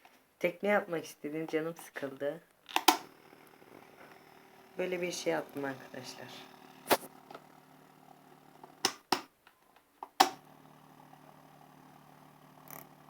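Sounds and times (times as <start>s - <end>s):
sharp clicks: 2.7s - 3.6s, 8.8s - 9.3s, 10.0s - 10.4s.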